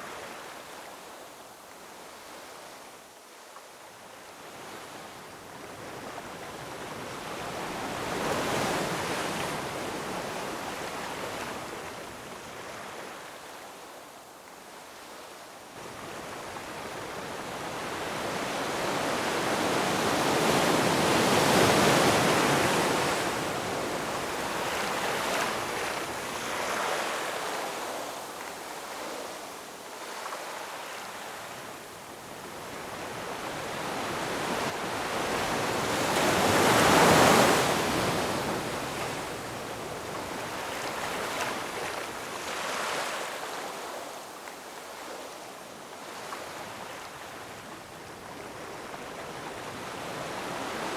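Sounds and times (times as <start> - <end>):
ocean waves breaking over rocks: 15.8 - 29.5, 32.3 - 45.0.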